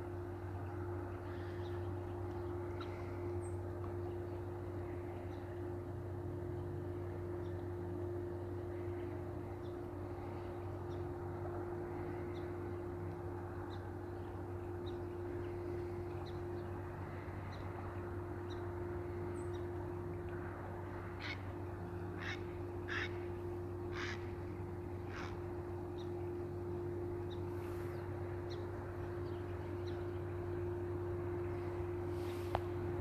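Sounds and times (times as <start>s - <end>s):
constant low hum: 0.0s - 33.0s
bird calling: 21.2s - 32.8s.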